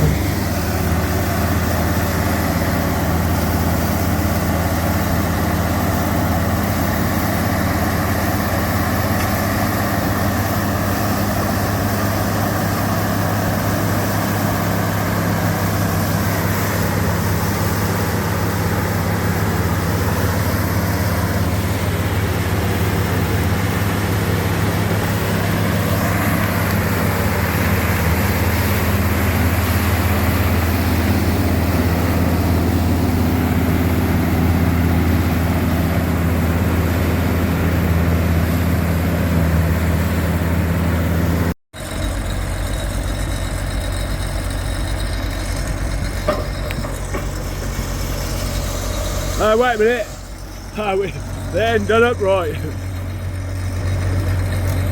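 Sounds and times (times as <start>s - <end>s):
diesel engine droning: 0.0s - 54.9s
machinery noise: 0.0s - 54.9s.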